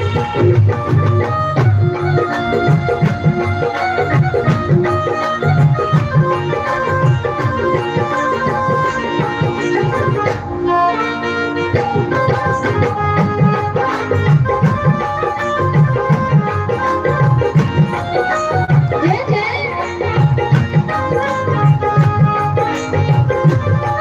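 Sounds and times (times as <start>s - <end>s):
held melody line: 0.0s - 24.0s.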